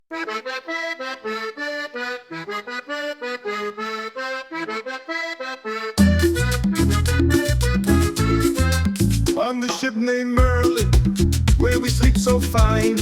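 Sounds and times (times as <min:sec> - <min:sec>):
accordion melody: 0:00.0 - 0:09.6, 0:10.4 - 0:13.0
bass and percussion: 0:06.0 - 0:09.5, 0:10.4 - 0:13.0.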